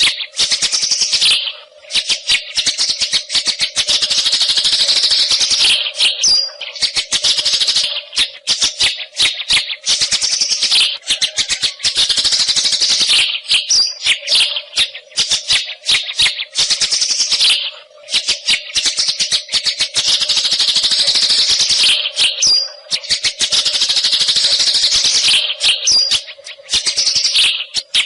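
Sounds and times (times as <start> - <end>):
bird chattering and clicking: 0.0 - 28.0
bird whistles: 0.0 - 28.0.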